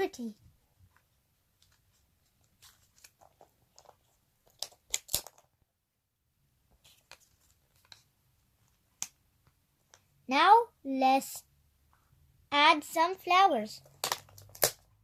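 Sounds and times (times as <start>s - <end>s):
paper crackles: 1.6s - 5.4s
paper stickers crinkling: 1.6s - 5.5s.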